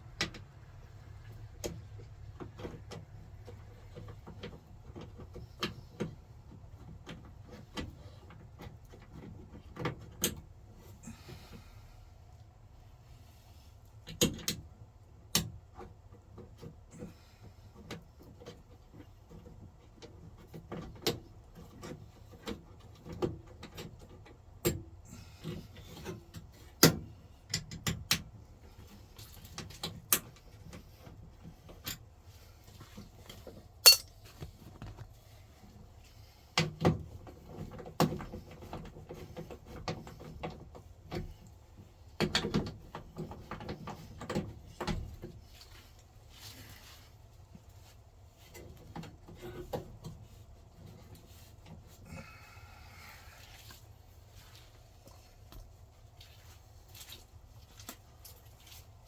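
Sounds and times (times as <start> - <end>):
metal clicks and clinks: 33.8 - 34.2.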